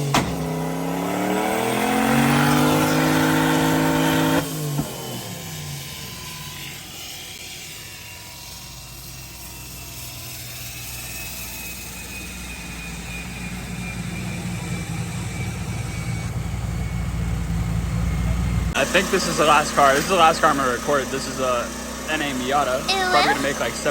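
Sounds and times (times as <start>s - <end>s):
dyno rollers whine: 0.0s - 23.9s
low engine hum: 13.8s - 23.9s.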